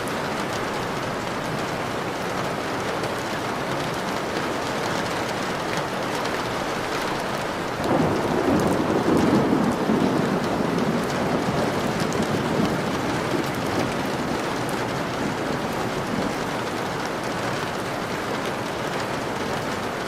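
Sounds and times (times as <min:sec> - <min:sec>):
steady rain: 0:00.0 - 0:20.0
low thunder rumble: 0:07.3 - 0:16.4.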